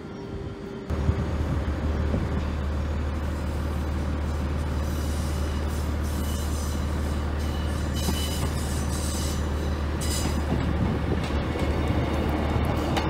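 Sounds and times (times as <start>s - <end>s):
diesel train engine rumble: 0.0s - 13.0s
train wheels squealing: 4.8s - 10.6s.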